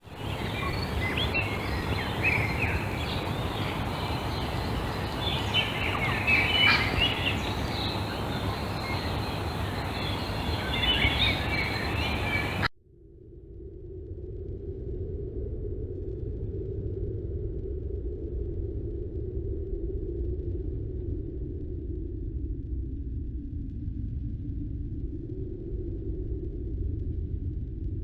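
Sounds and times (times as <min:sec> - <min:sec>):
birds chirping and trilling: 0:00.0 - 0:12.7
steady rushing noise: 0:00.0 - 0:12.7.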